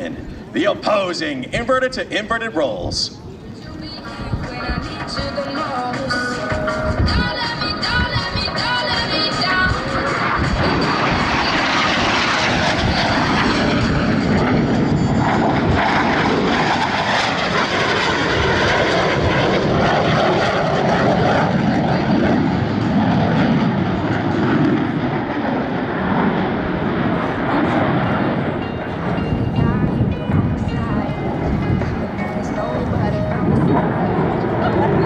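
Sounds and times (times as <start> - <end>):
jet engines roaring: 0.0 - 35.0.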